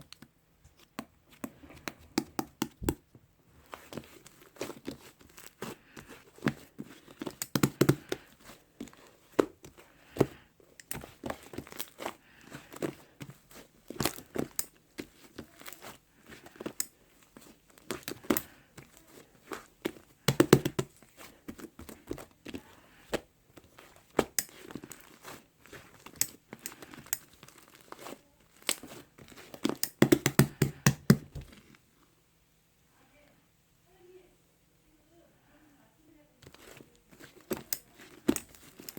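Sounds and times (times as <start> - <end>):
plastic or paper crinkling: 3.6 - 29.8, 36.4 - 38.9.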